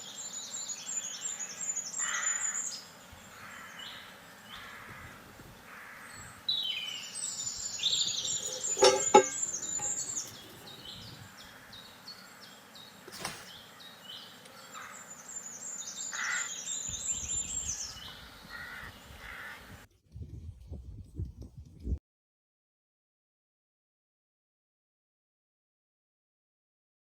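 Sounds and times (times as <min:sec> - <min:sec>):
birds chirping: 0:06.7 - 0:11.2.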